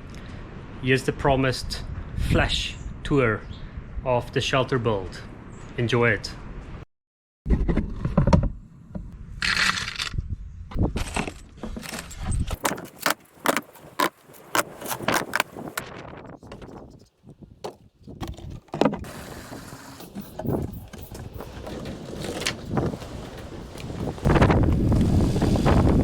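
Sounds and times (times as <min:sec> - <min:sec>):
wind on microphone: 0:01.7 - 0:04.1, 0:14.7 - 0:26.0.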